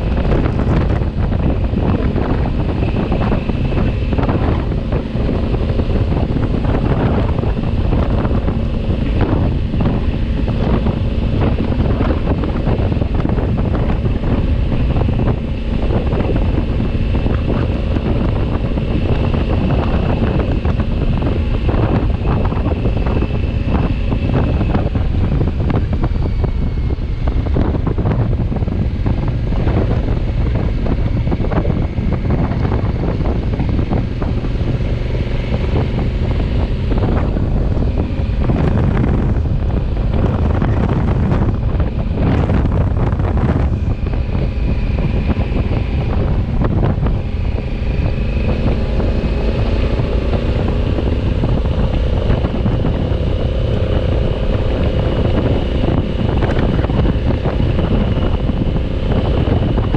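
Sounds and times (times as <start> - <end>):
motorcycle engine running: 0.0 - 59.9
wind buffeting microphone: 0.0 - 59.9.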